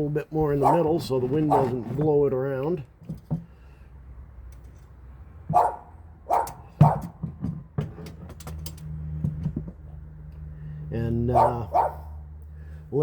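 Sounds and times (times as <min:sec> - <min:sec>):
dog barking: 0:00.6 - 0:00.9, 0:01.5 - 0:01.8, 0:05.5 - 0:07.1, 0:11.3 - 0:12.2.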